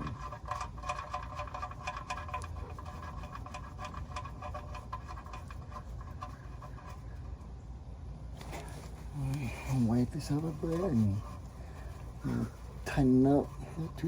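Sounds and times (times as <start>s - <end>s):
bolt threading clicks and scrapes: 0.0s - 7.4s.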